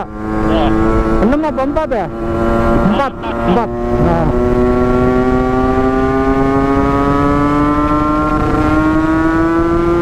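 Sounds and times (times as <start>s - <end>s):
two-stroke motorcycle engine revving: 0.0s - 10.0s.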